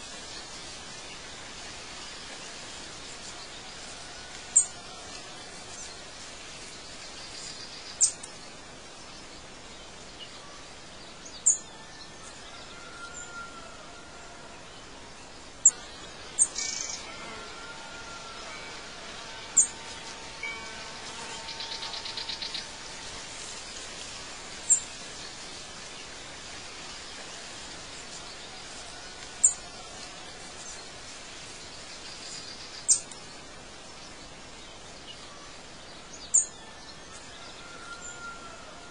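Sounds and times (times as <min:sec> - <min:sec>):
steady outdoor hiss: 0:00.0 - 0:38.9
bird trill: 0:16.4 - 0:22.9.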